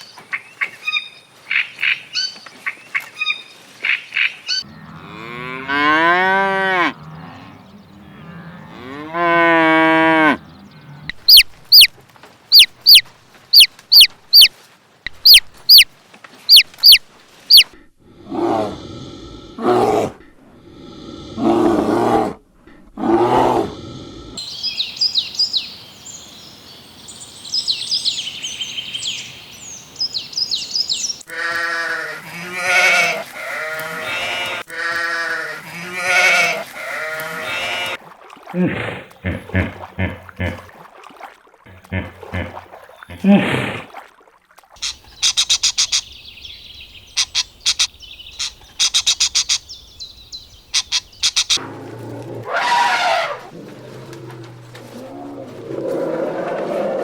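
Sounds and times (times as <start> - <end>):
high twittering: 11.3 - 11.9, 12.5 - 14.5, 15.1 - 15.9, 16.5 - 17.7
quick high peeps: 11.3 - 11.9, 12.5 - 14.5, 15.1 - 15.9, 16.5 - 17.7.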